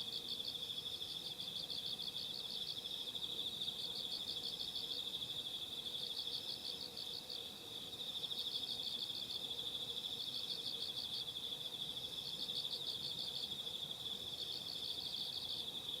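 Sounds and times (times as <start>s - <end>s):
insect rapid chirps: 0.0s - 16.0s.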